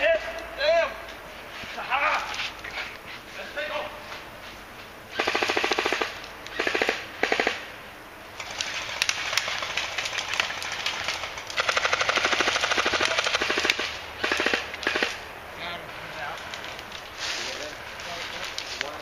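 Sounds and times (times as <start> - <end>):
airsoft guns firing bursts: 5.1 - 7.7, 8.4 - 15.2.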